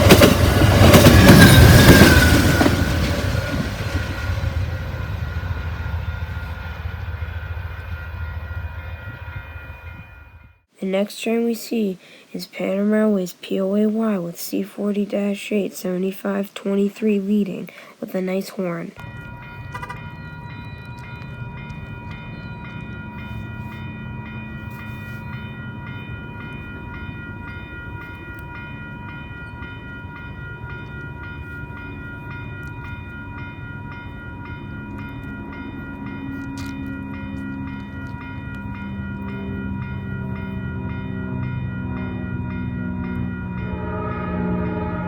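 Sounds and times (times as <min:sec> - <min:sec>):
freight train diesel rumble: 0:00.0 - 0:10.6, 0:19.0 - 0:45.0
electronic crossing bell ringing: 0:05.9 - 0:10.6, 0:19.0 - 0:45.0.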